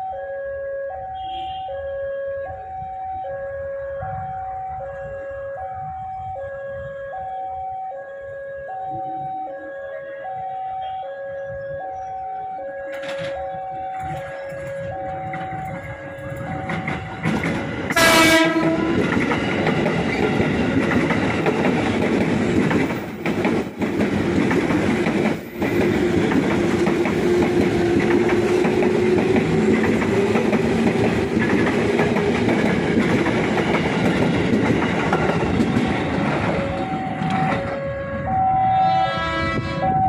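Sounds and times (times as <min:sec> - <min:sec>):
train horn blast: 0:01.1 - 0:02.0, 0:09.4 - 0:11.6, 0:17.9 - 0:19.2, 0:36.8 - 0:40.0
train wheels rumbling on rail: 0:12.9 - 0:40.0.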